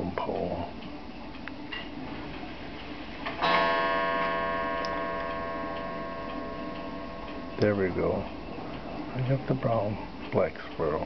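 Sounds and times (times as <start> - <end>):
metal chime ringing: 3.4 - 8.0.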